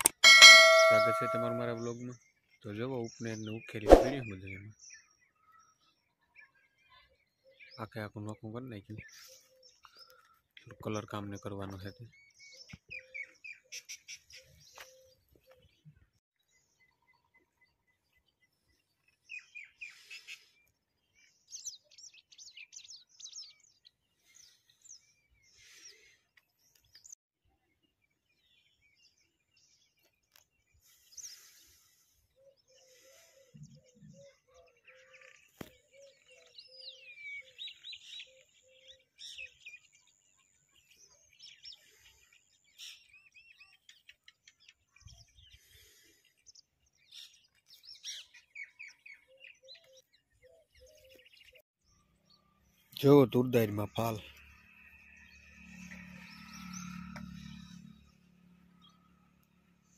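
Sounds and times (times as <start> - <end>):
birds chirping and singing: 0.0 - 27.2, 27.8 - 59.9
lower repeated bird note: 0.2 - 1.8.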